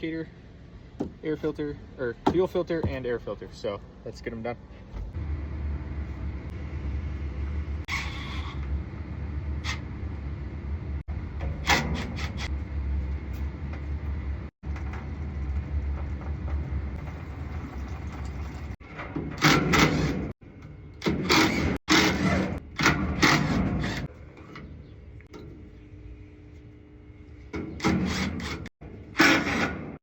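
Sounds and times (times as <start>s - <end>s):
steady low rumble: 0.0s - 7.9s, 8.7s - 11.7s
metal doors clanking and banging: 18.8s - 20.4s.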